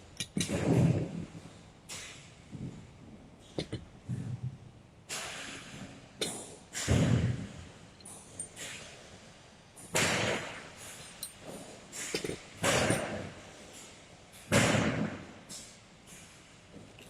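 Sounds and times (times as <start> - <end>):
parts clicking and scraping: 0.0 - 0.7, 9.8 - 14.5.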